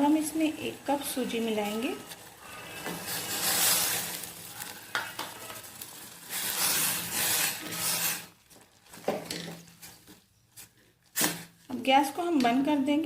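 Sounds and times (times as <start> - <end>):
hot water hissing: 0.0 - 8.6
spoon scraping in a pot: 1.7 - 8.4.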